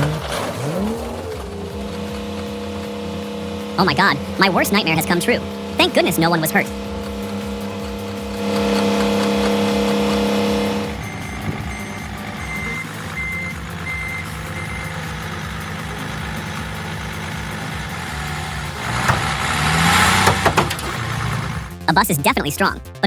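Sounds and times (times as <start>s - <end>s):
heavy vehicle engine running: 0.0s - 23.0s
reversing alarm beeping: 3.6s - 15.4s.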